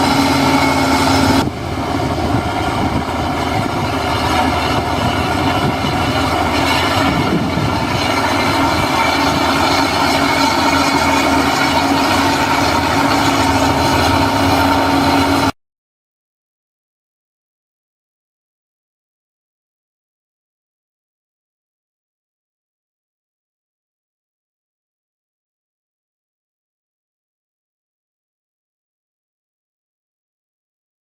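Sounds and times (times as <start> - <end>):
heavy machinery diesel engine: 0.0 - 15.6.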